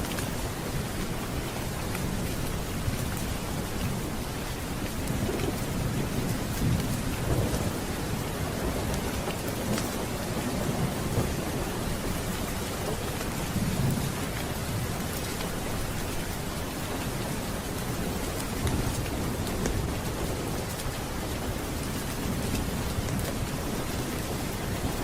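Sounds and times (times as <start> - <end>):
heavy rain: 0.0 - 25.0
low rolling thunder: 5.0 - 15.2.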